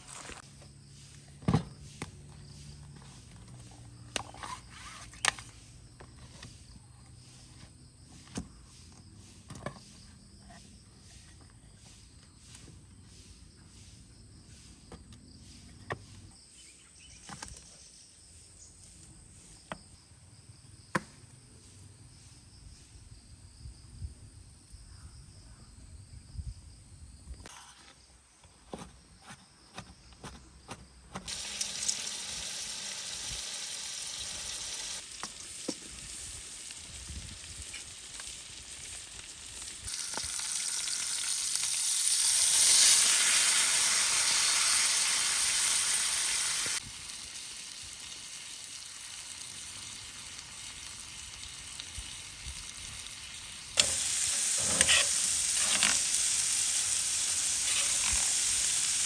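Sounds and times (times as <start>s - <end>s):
insects chirring: 0.0s - 28.4s, 29.0s - 59.0s
loud steady hiss: 31.3s - 59.0s.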